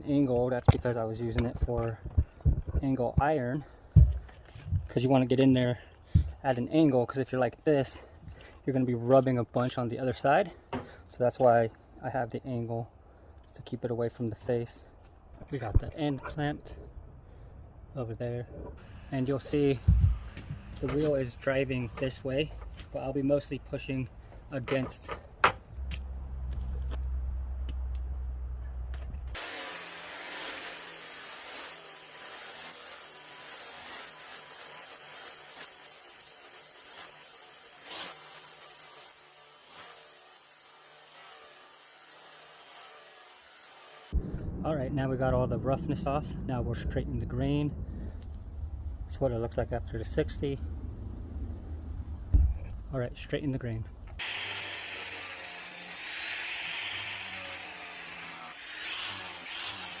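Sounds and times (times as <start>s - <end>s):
grinder grinding steel: 29.3s - 44.2s, 54.2s - 60.0s.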